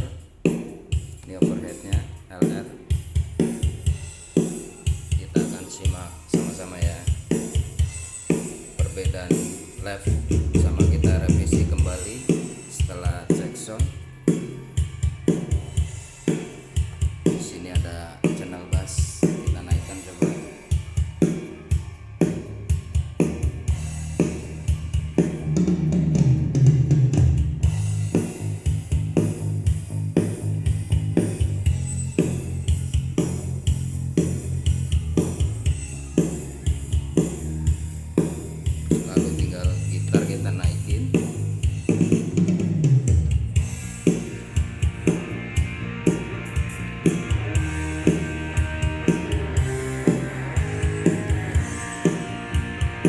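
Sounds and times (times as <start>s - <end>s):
drum kit beat: 0.0s - 53.0s
bass guitar run: 8.8s - 14.0s, 21.7s - 53.0s
electric guitar: 43.7s - 53.0s.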